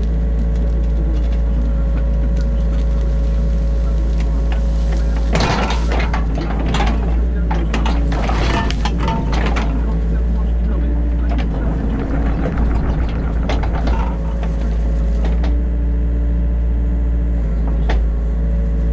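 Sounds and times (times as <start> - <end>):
excavator engine drone: 0.0 - 18.9
steady whine: 0.0 - 18.9
clattering and scraping knocks: 4.2 - 15.7.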